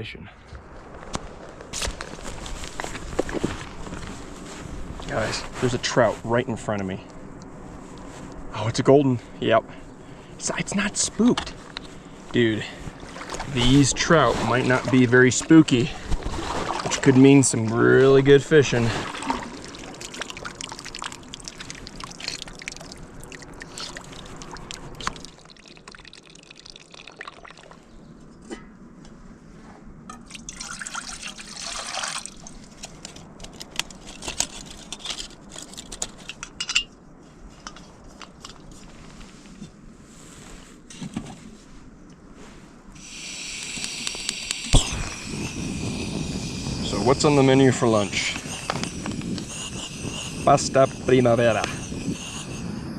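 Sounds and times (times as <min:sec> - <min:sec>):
water pouring and trickling: 0:12.9 - 0:27.9, 0:30.2 - 0:32.9
camp cooking gear clicking: 0:32.7 - 0:36.8
steady hiss: 0:43.0 - 0:52.9.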